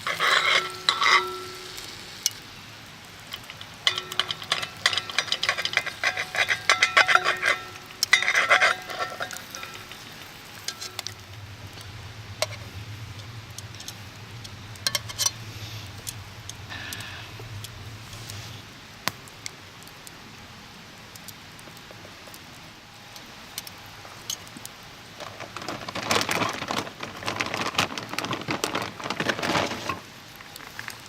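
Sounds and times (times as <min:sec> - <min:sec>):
metal utensil scraping skillet: 0:00.0 - 0:02.4, 0:03.3 - 0:11.8, 0:12.4 - 0:16.1
steak sizzling: 0:00.0 - 0:20.2
low steady hum: 0:00.0 - 0:27.7.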